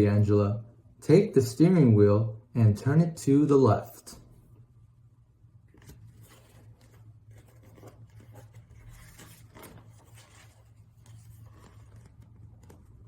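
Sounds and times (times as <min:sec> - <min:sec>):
steady low hum: 0:00.0 - 0:13.0
rustling and light scratching: 0:05.7 - 0:13.0.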